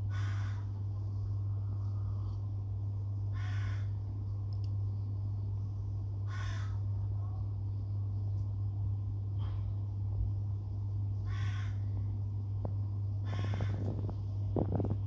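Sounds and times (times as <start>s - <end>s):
steady low hum: 0.0s - 15.0s
bird calling: 13.3s - 13.8s.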